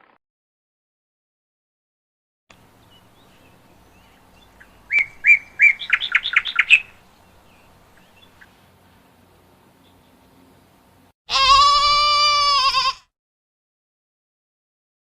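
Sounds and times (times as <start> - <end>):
bird singing: 2.5 - 11.0.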